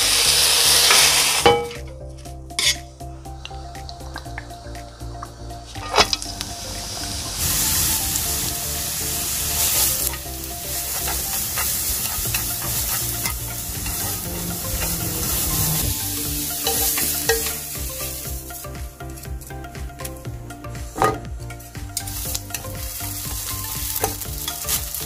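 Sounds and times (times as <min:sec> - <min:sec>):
carrots sizzling in a frying pan: 0:00.0 - 0:01.8, 0:06.3 - 0:19.5, 0:22.0 - 0:25.0.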